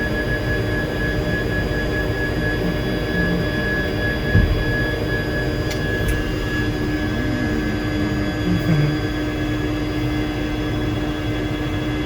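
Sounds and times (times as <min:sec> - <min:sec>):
helicopter cabin drone: 0:00.0 - 0:12.0
low thump: 0:04.3 - 0:05.0.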